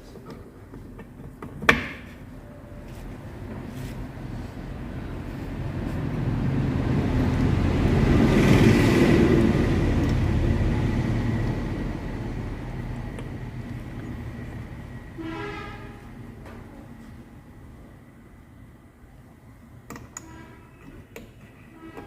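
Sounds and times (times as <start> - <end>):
heavy vehicle passing: 3.4 - 17.2
horn honk: 15.1 - 16.1, 20.2 - 21.0, 21.7 - 22.0.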